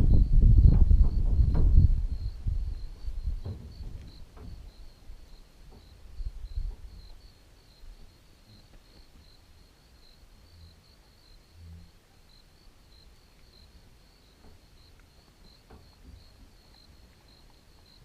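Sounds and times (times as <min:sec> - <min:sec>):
low rumble: 0:00.0 - 0:05.3
crickets chirping: 0:00.0 - 0:18.0.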